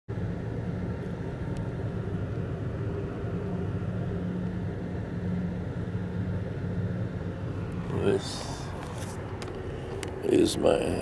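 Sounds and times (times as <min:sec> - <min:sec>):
train rumble from inside: 0:00.4 - 0:11.0.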